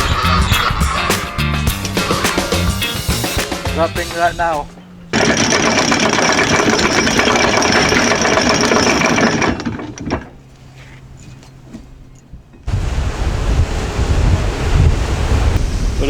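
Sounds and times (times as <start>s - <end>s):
wind: 0.0s - 16.0s
anchor chain rattling: 2.0s - 12.7s
waves: 12.7s - 16.0s.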